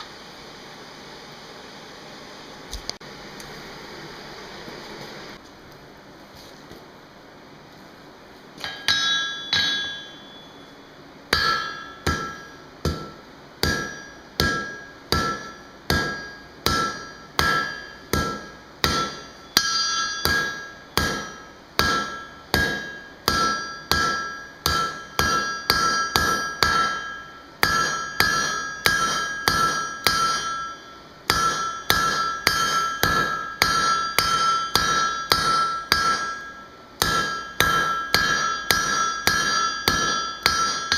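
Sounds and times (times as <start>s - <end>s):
hammer striking steel on anvil: 8.6s - 40.9s.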